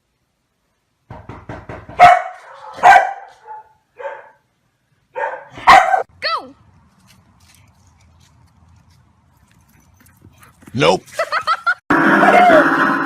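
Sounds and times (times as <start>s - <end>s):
dog barking: 2.0s - 4.5s, 5.1s - 6.1s.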